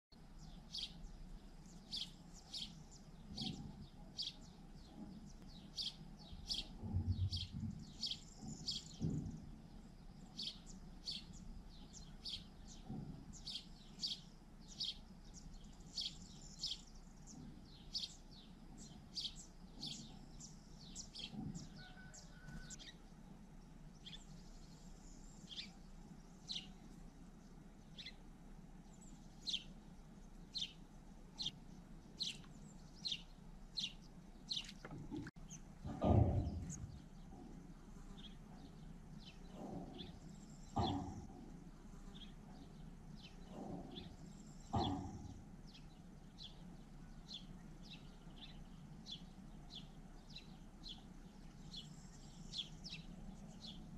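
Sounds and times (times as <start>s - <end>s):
bird chirping: 0.1s - 53.9s
soft low thumps: 3.2s - 10.4s, 34.4s - 46.5s.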